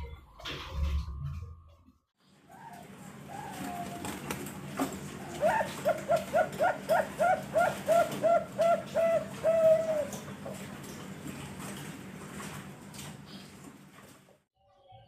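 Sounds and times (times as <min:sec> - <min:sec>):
dove cooing: 0:02.4 - 0:10.7.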